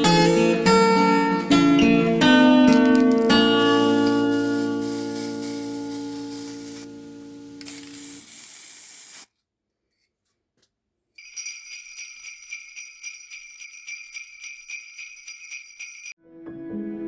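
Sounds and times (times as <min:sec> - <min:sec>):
jingle bells shaken: 0:02.7 - 0:06.9, 0:07.6 - 0:09.3, 0:11.2 - 0:16.2
hiss: 0:03.5 - 0:06.9, 0:07.6 - 0:09.3.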